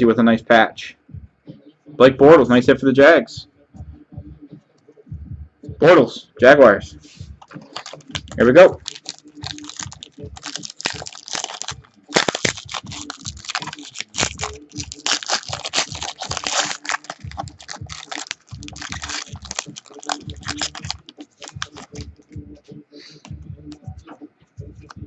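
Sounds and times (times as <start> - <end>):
cards being handled: 7.4 - 22.0
wrapper tearing and crinkling: 7.4 - 22.0.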